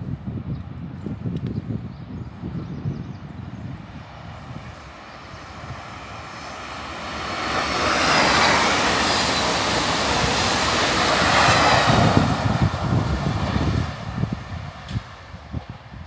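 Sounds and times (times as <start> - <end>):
deep train rumble: 0.0 - 16.0
train passing rushing noise: 3.5 - 16.0.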